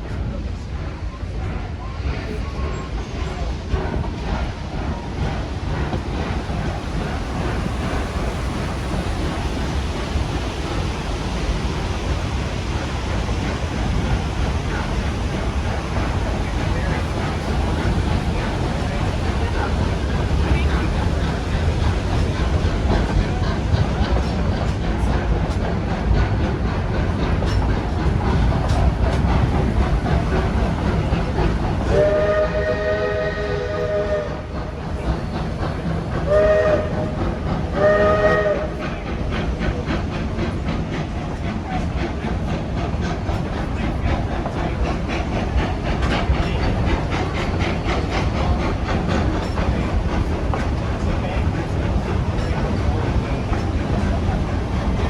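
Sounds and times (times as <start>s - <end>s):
moving train rumble and clickety-clack: 0.0s - 55.0s
steam locomotive chord whistle: 31.9s - 34.5s, 36.3s - 38.8s.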